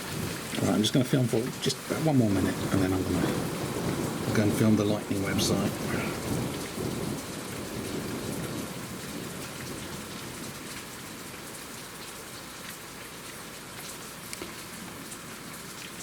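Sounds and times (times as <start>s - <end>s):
hail pellets ticking: 0.0s - 10.9s
low thunder rumble: 0.0s - 11.3s
hail and rain hiss: 0.0s - 16.0s.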